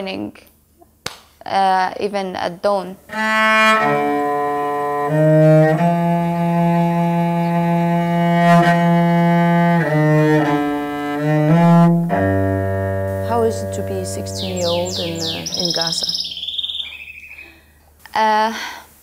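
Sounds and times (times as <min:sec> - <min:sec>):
cello playing slow melody: 0:03.1 - 0:15.8.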